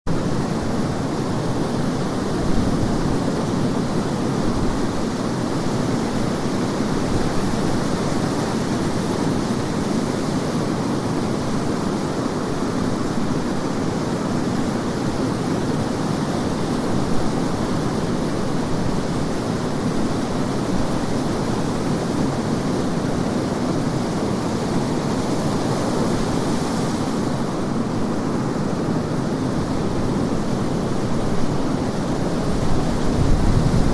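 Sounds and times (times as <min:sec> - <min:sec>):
wind blowing: 0:16.6 - 0:33.9.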